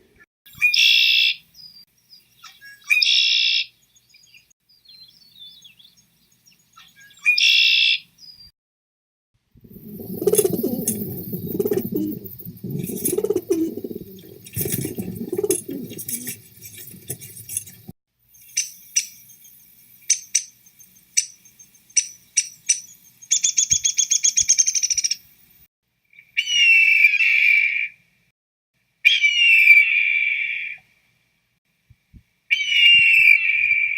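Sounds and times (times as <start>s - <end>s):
birds chirping and trilling: 0.5s - 8.5s, 9.7s - 25.3s.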